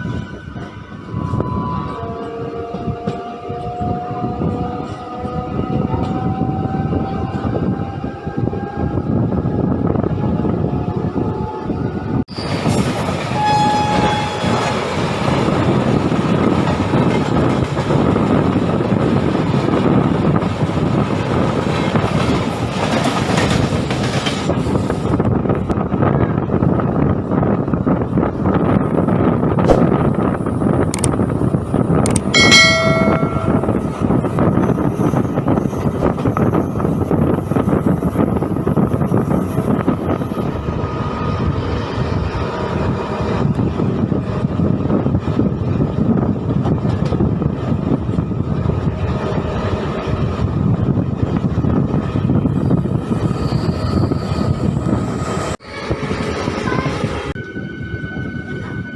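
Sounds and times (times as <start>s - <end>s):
train wheels rumbling on rails: 0.0s - 58.9s
wind noise: 0.0s - 58.9s
high ringing tone: 32.4s - 34.2s.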